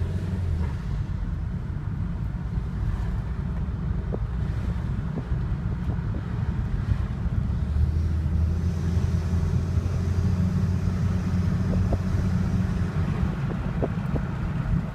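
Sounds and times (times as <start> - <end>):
car engine rumbling: 0.0 - 14.9.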